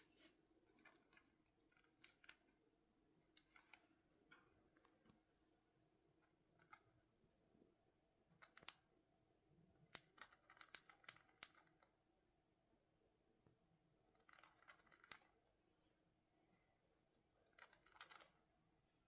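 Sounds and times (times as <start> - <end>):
sharp clicks and scratchy ticks: 0.0 - 2.6, 9.8 - 11.9, 14.2 - 15.4, 17.4 - 18.5.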